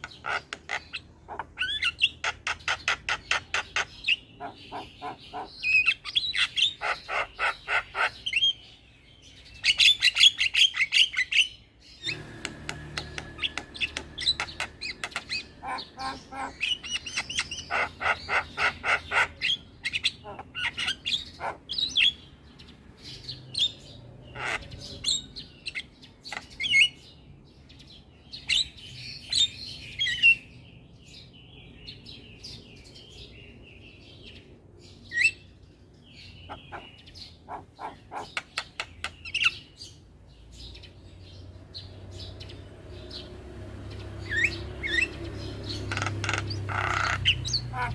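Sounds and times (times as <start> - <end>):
myna calling: 0.0 - 8.2, 12.1 - 21.8, 36.5 - 38.6, 44.3 - 47.9.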